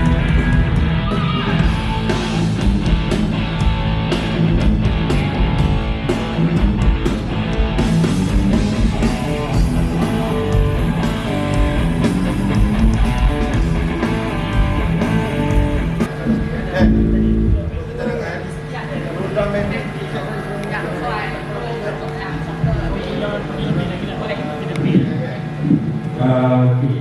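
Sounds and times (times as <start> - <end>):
rock band playing live: 0.0 - 18.0
electric guitar: 0.0 - 27.0.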